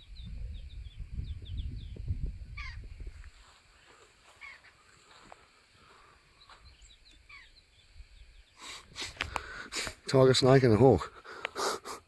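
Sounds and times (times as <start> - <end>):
faint bird chirps: 0.0 - 5.2, 6.0 - 9.0
rustling and scuffing: 3.1 - 6.8.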